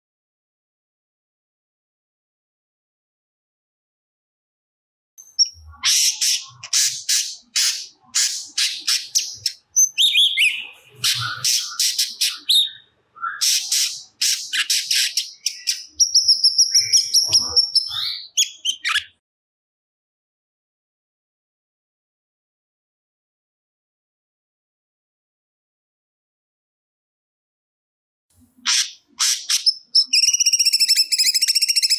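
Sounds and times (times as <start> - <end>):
songbird singing: 5.2 - 19.2, 28.7 - 31.9
long high bird whistle: 30.1 - 31.9.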